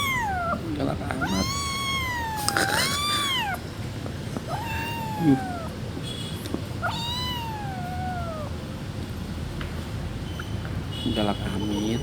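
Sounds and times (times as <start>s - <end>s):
kitten meowing: 0.0s - 3.7s, 4.4s - 5.8s, 6.8s - 8.6s.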